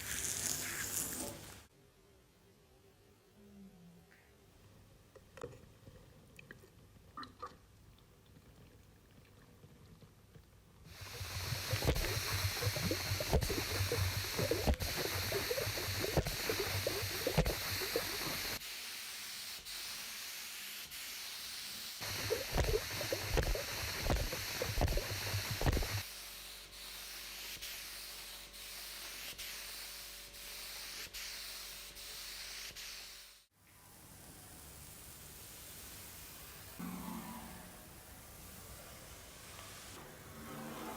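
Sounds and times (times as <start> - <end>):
hand sanding strokes: 10.9 - 33.0.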